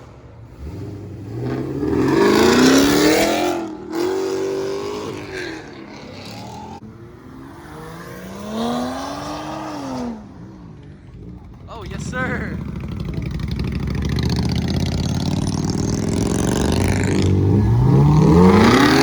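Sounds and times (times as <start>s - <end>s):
car engine revving and accelerating: 0.0s - 19.0s.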